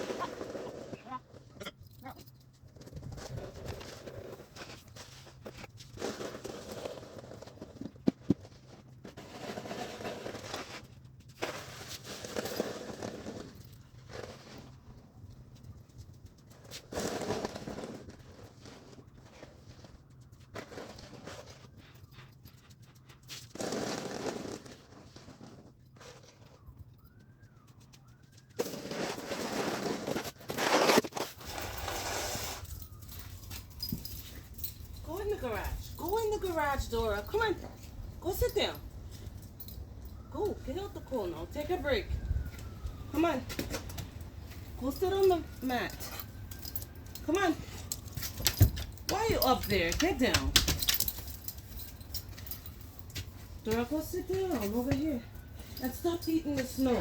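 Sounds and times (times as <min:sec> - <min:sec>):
snow shovel scraping snow: 0:00.0 - 0:01.4, 0:06.0 - 0:07.7, 0:09.2 - 0:10.8, 0:11.4 - 0:14.6, 0:16.9 - 0:19.5, 0:23.6 - 0:25.7, 0:28.6 - 0:32.6.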